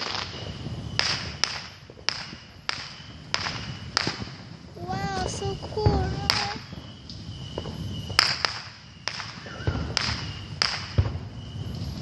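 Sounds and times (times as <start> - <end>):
fireworks banging: 0.0 - 12.0.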